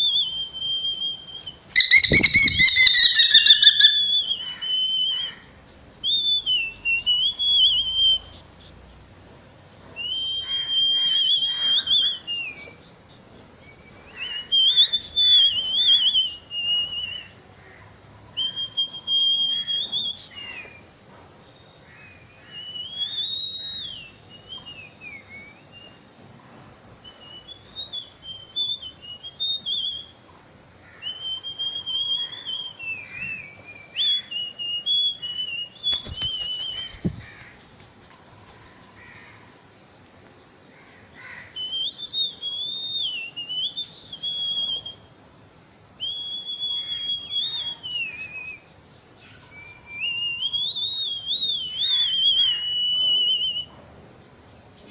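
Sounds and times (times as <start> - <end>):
high-pitched whistling tunes: 1.8 - 4.3.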